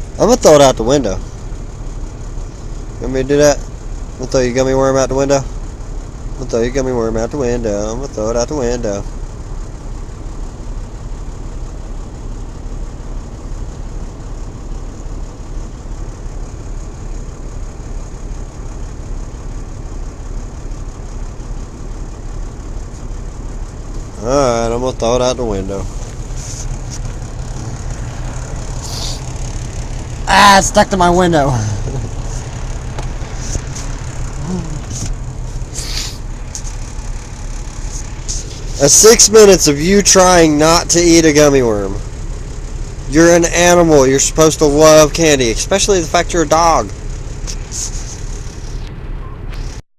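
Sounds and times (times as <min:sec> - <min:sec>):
truck diesel engine humming: 0:00.0 - 0:49.8
brief air hissing: 0:28.8 - 0:29.3, 0:35.0 - 0:36.3.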